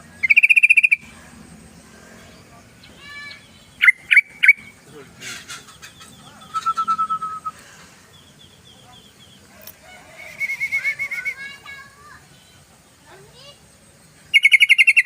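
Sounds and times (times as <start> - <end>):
bird singing whistled notes: 0.0 - 1.0, 2.9 - 4.8, 5.7 - 9.4, 10.1 - 11.7, 14.2 - 15.0.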